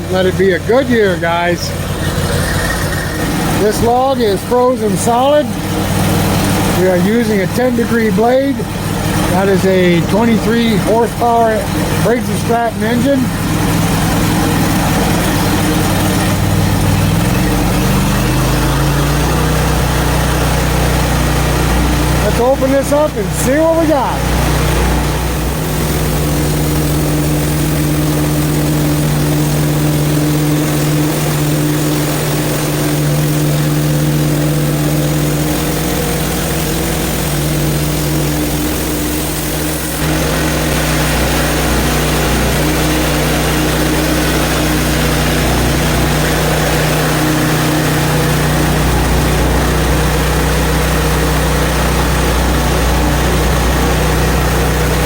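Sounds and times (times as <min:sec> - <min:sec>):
sawmill engine running: 0:00.0 - 0:55.0
band blade hissing through log: 0:24.2 - 0:50.8.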